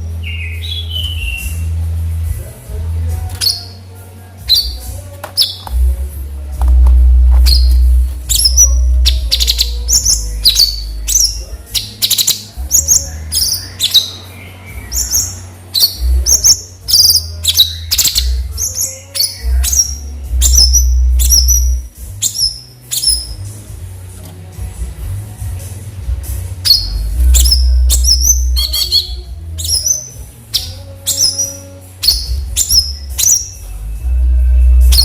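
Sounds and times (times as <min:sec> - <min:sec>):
loud low rumble: 0:05.8 - 0:11.5
bulbul chirping: 0:07.4 - 0:23.4, 0:26.6 - 0:33.7.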